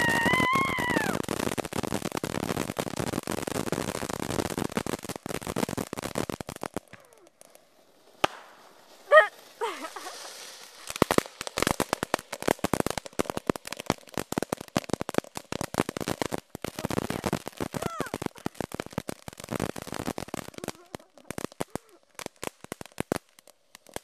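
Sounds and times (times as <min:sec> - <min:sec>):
shrill squeal: 0:00.0 - 0:01.0
firecracker cracks and pops: 0:00.0 - 0:24.0
firework bang: 0:08.2 - 0:08.8.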